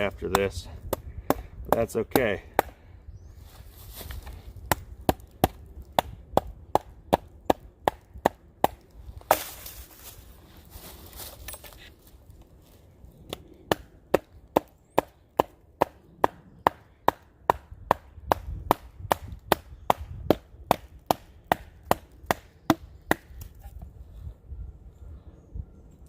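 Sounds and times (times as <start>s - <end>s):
sharp wooden knocks: 13.7s - 23.4s.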